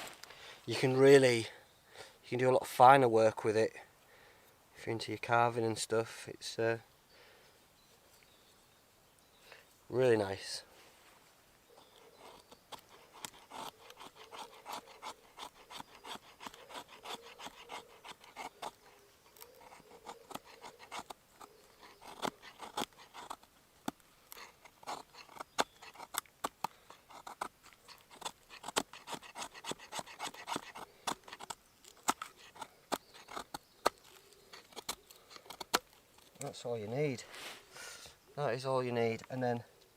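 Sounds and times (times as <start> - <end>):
knife scraping wood: 11.7 - 36.5.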